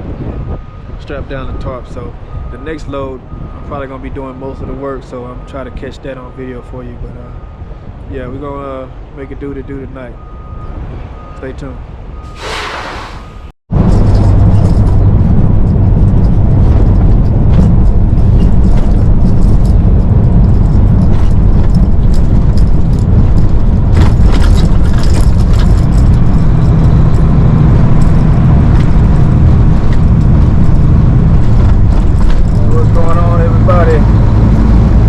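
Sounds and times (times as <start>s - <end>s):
road noise: 0.0s - 35.0s
truck engine drone: 0.0s - 35.0s
light rattles: 13.8s - 34.7s.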